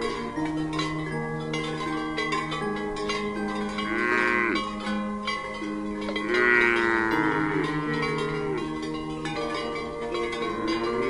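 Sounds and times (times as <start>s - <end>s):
background music: 0.0s - 11.0s
cow mooing: 3.8s - 4.7s, 6.2s - 8.9s, 10.3s - 11.0s.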